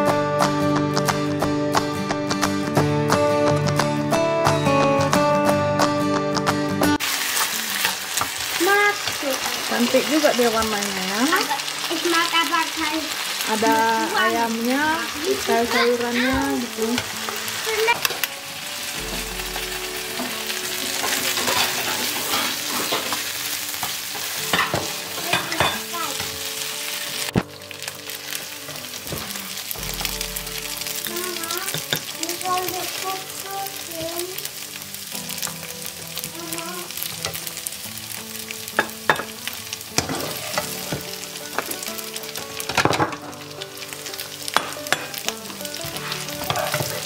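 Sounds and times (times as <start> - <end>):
rice sizzling in a frying pan: 6.8 - 47.0.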